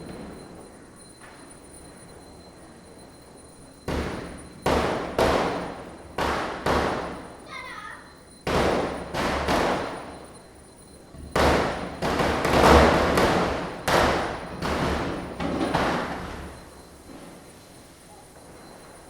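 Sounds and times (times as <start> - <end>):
firecrackers bursting: 3.9 - 7.6, 8.4 - 10.4, 11.2 - 16.6.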